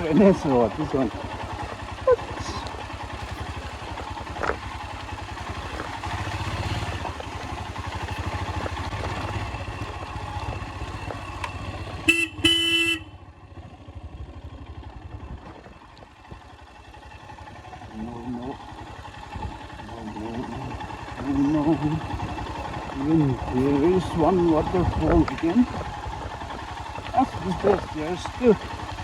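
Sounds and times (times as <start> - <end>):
motorcycle engine running: 0.0 - 29.0
horn honking: 11.7 - 13.3.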